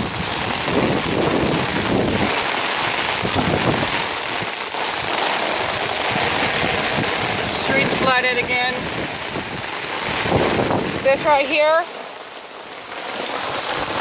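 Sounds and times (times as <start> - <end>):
wind buffeting microphone: 0.0 - 11.8
heavy rain hiss: 0.0 - 14.0.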